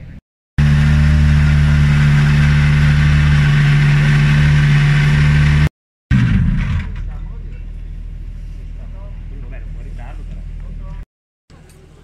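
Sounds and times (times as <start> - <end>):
rally car engine running: 0.6 - 7.2.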